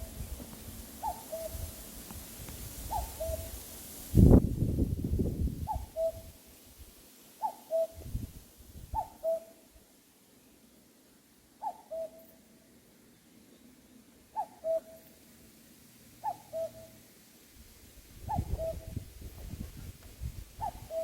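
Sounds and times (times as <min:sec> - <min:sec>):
wind rumble on microphone: 0:00.0 - 0:06.4, 0:07.9 - 0:09.2, 0:17.9 - 0:21.0
cuckoo calling: 0:01.0 - 0:01.8, 0:02.9 - 0:03.6, 0:05.6 - 0:06.4, 0:07.4 - 0:08.1, 0:08.9 - 0:09.7, 0:11.6 - 0:12.4, 0:14.3 - 0:15.2, 0:16.2 - 0:17.0, 0:18.3 - 0:19.0, 0:20.6 - 0:21.0.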